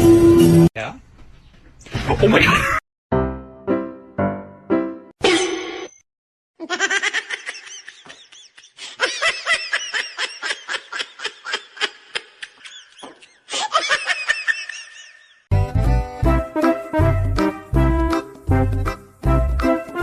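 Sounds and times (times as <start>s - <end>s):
person laughing hard: 6.6s - 15.4s.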